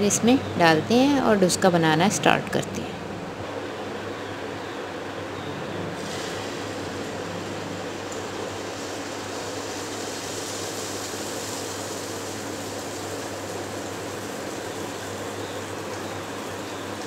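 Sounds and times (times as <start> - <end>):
batter frying in hot oil: 5.9 - 17.0.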